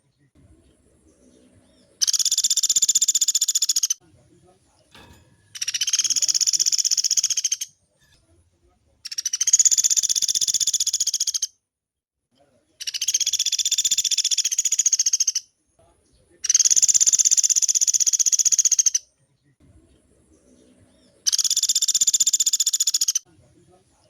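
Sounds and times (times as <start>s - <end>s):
woodpecker rolling trills: 0.5s - 4.0s, 5.5s - 7.7s.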